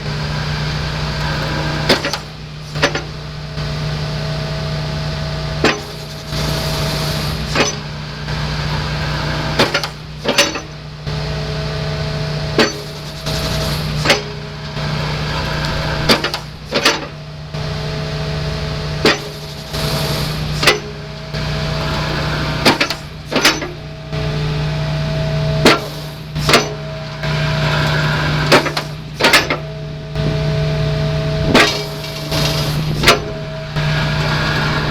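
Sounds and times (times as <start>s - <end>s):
diesel engine running: 0.0s - 34.9s
hydraulic whine: 0.0s - 34.9s
crusher jaws clunking: 1.1s - 3.3s, 5.6s - 7.9s, 9.6s - 10.9s, 12.5s - 17.3s, 18.4s - 24.5s, 25.1s - 34.9s.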